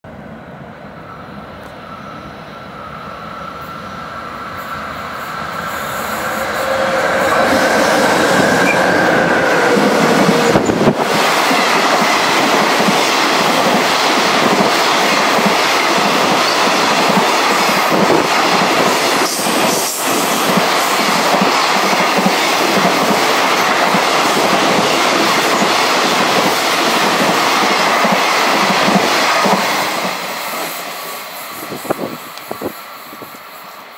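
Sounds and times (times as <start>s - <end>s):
freight train passing: 0.0s - 33.9s
faint train horn: 1.0s - 10.6s.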